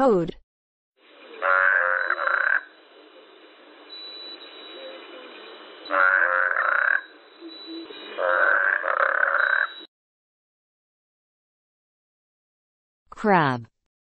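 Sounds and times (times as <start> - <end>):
toad croaking: 1.4 - 2.7, 5.9 - 9.9.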